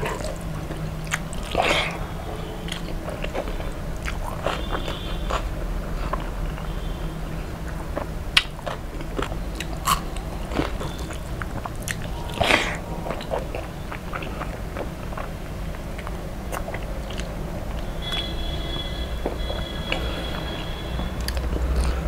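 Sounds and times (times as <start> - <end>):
chewing and crunching food: 0.0 - 22.0.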